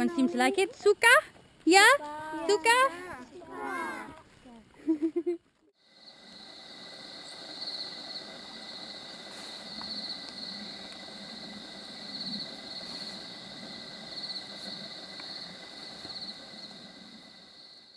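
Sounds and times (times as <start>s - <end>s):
insects chirring: 0.0s - 17.9s
insect pulsing trills: 5.8s - 17.9s.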